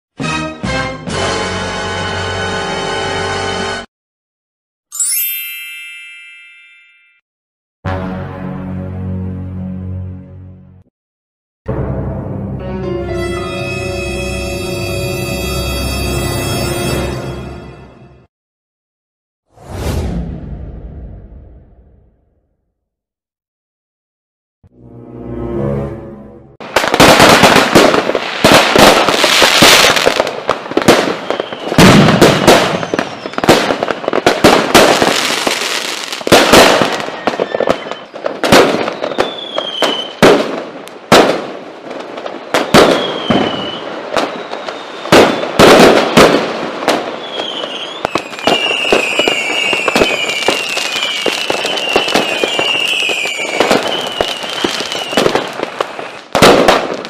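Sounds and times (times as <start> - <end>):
firework bangs and crackles: 26.6 - 57.0
rocket whistles: 31.1 - 31.8, 32.6 - 33.5, 36.9 - 40.2, 42.6 - 45.6, 47.2 - 55.6.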